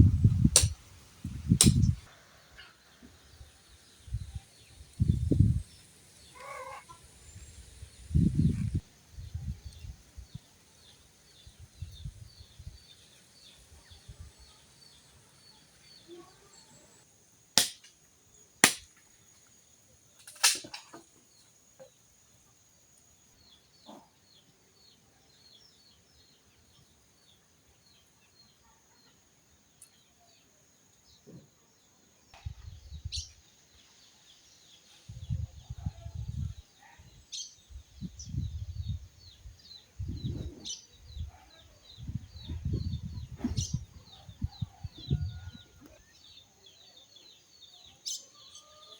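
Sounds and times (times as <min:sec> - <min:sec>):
sharp cracks: 0:00.5 - 0:00.8, 0:01.6 - 0:01.9, 0:17.6 - 0:18.0, 0:18.6 - 0:19.0, 0:20.2 - 0:20.9.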